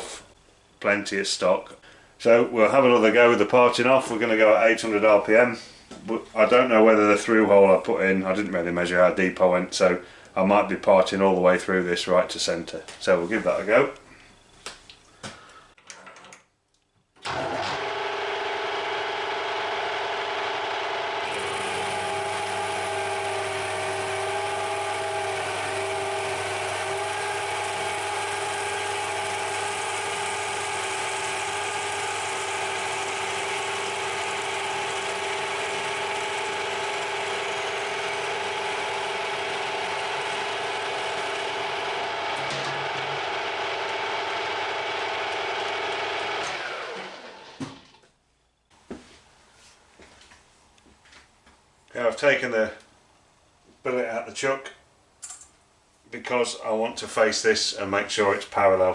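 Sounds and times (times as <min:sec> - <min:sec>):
lathe motor and gear whine: 0:17.3 - 0:47.6.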